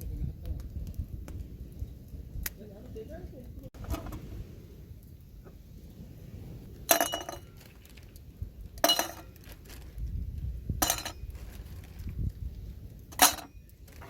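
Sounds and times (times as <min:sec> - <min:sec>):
glass clinking: 0:06.9 - 0:07.5, 0:08.8 - 0:09.3, 0:10.8 - 0:11.2, 0:13.2 - 0:13.7.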